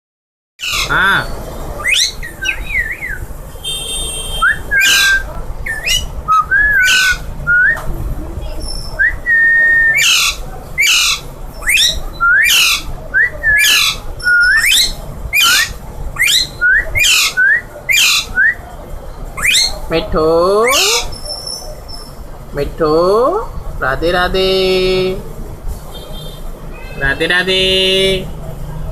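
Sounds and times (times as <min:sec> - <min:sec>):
parakeet screeching: 0:00.6 - 0:07.3, 0:09.9 - 0:12.9, 0:13.6 - 0:18.4, 0:19.4 - 0:19.8, 0:20.6 - 0:22.1.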